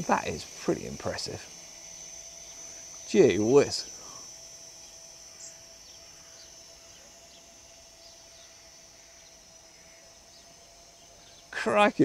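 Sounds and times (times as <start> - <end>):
faint outdoor background: 0.0 - 12.0
bird chirps: 4.8 - 11.6.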